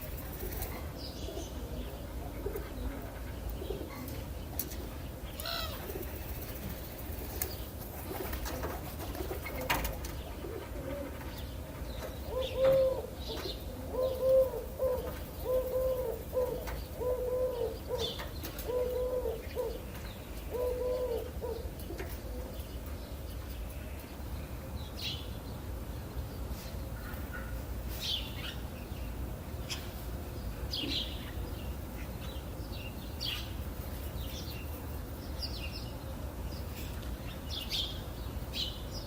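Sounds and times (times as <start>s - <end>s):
birds chirping: 0.0s - 39.0s
dove cooing: 8.0s - 11.3s, 12.2s - 22.6s.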